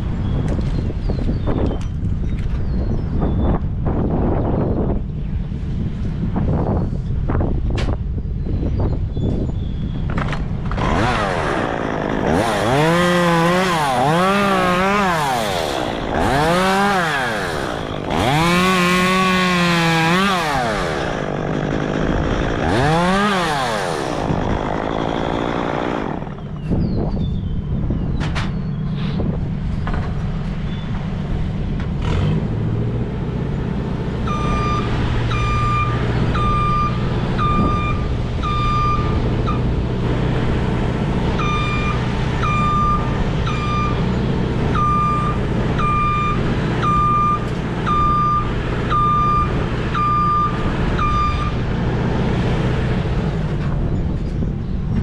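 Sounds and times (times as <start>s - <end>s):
chainsaw revving: 10.6s - 26.6s
machine engine running: 10.7s - 26.6s
reversing alarm beeping: 34.3s - 39.7s, 41.4s - 44.1s, 44.7s - 51.6s.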